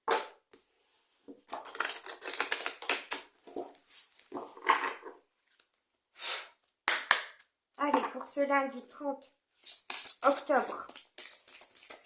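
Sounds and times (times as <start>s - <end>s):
cards being shuffled: 9.6s - 12.0s.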